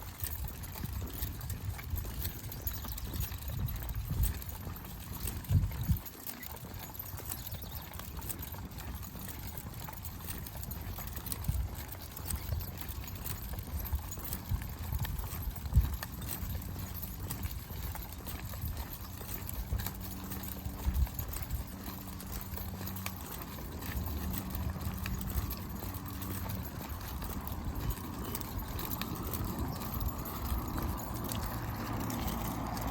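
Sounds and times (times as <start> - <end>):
footsteps on dirt trail: 0.1 - 32.9.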